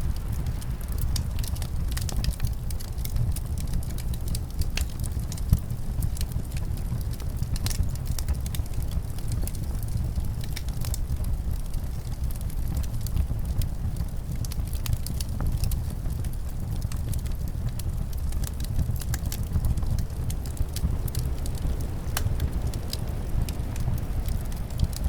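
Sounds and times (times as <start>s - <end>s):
low rumble of wind: 0.0s - 25.0s
wood fire crackling and popping: 0.0s - 25.0s.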